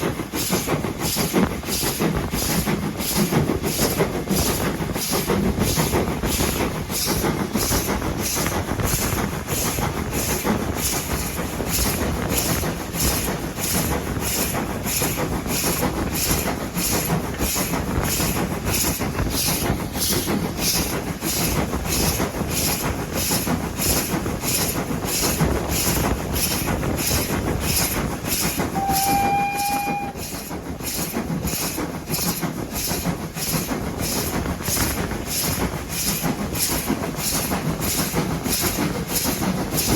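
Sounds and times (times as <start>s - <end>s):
train wheels clattering on rails: 0.0s - 39.9s
train whistle blast: 28.7s - 30.4s.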